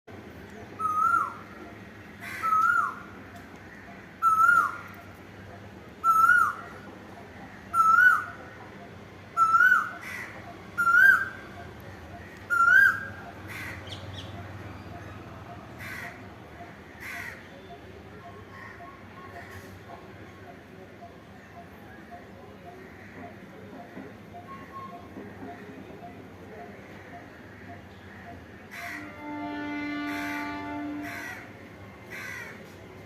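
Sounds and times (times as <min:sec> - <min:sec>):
koel whistled calls: 0:00.8 - 0:01.4, 0:10.8 - 0:11.5, 0:12.5 - 0:14.3.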